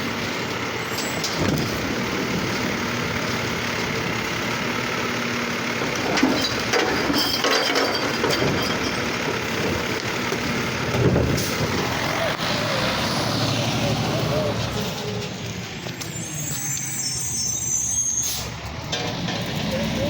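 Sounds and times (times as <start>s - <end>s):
garbage truck engine running: 0.0s - 20.0s.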